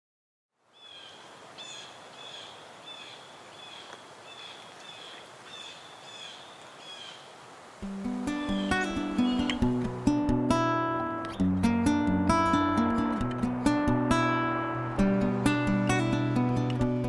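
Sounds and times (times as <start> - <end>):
steady outdoor hiss: 0.5 - 17.0
strummed acoustic guitar music: 7.8 - 17.0.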